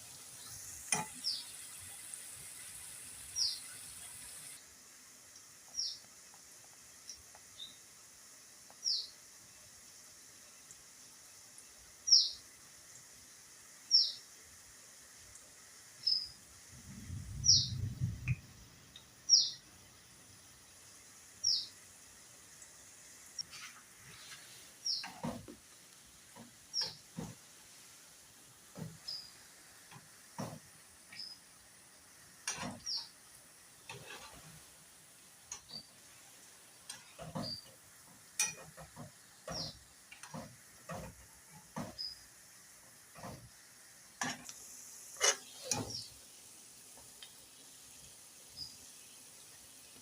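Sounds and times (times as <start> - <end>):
faint oil sizzle: 0.0 - 50.0
bird chirping: 19.3 - 19.7
spatula scraping frying pan: 33.8 - 34.7, 36.9 - 37.7, 38.4 - 42.2, 45.1 - 46.1.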